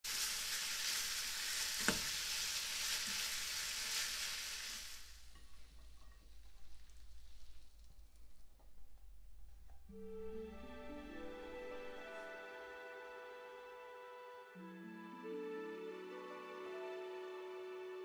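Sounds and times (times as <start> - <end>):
food sizzling in a pan: 0.0 - 8.2.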